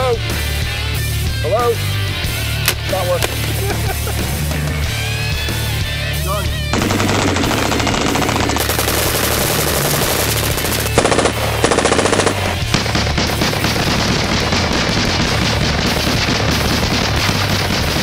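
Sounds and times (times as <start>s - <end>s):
rapid automatic gunfire: 6.7s - 18.0s.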